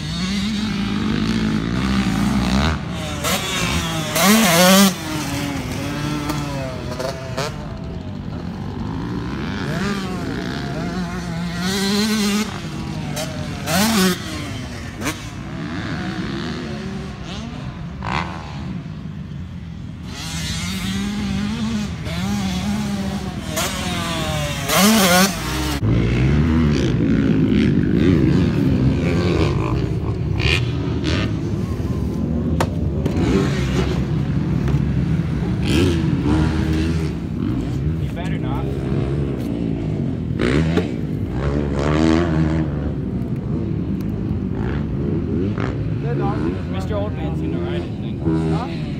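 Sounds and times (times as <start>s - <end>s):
dirt bike engines revving: 0.0s - 48.9s.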